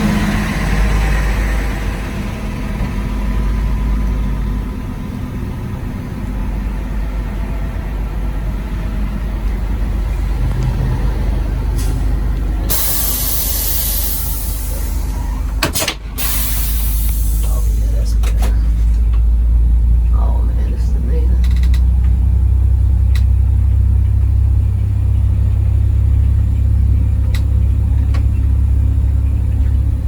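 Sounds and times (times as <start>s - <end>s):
coach engine rumbling: 0.0s - 30.0s
air brake hiss: 12.7s - 18.0s.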